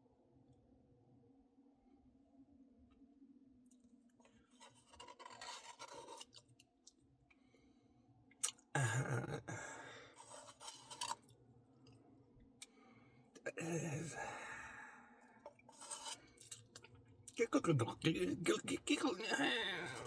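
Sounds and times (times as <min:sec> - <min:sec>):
chewing: 0:04.2 - 0:07.0, 0:10.2 - 0:11.3, 0:15.4 - 0:17.4
spoon scraping ice cream: 0:04.5 - 0:06.6, 0:10.2 - 0:11.3, 0:15.6 - 0:16.8.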